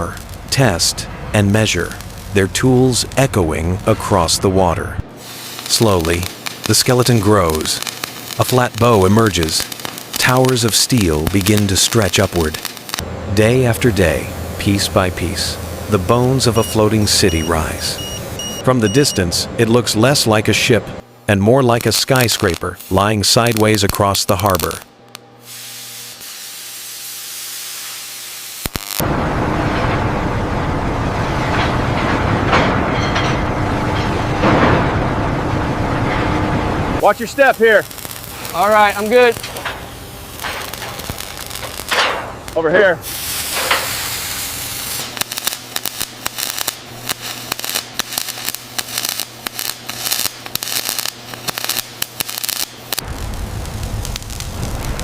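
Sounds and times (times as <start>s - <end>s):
rumbling industrial din: 0.0s - 5.2s, 13.0s - 21.1s, 29.0s - 43.1s
steady hiss: 5.1s - 18.0s, 37.0s - 55.0s
low rumbling roar: 13.0s - 16.5s, 29.0s - 37.0s, 53.0s - 55.0s
faint crackling: 37.2s - 42.8s.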